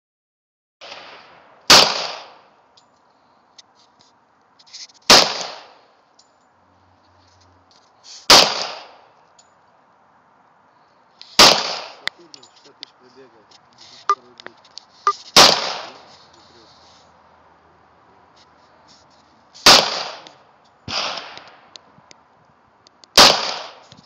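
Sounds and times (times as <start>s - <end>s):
gunshots with echo: 0.8s - 2.4s, 8.3s - 9.0s, 11.4s - 12.0s, 15.4s - 16.0s, 19.6s - 20.3s, 23.2s - 23.8s.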